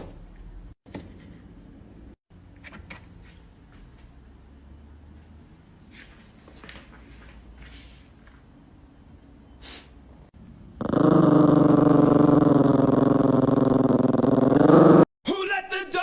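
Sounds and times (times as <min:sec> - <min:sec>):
dog growling: 0:10.7 - 0:15.1.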